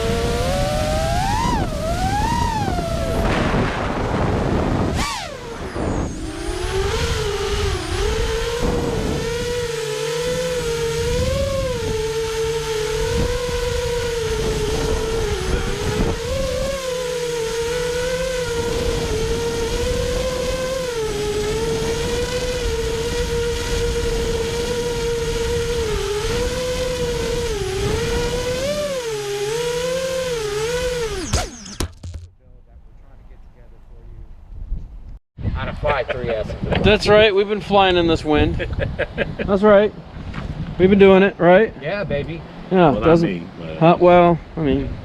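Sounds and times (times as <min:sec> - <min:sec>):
wind noise rumble: 0:00.0 - 0:29.0, 0:29.6 - 0:45.0
drone motors whining: 0:00.0 - 0:33.6.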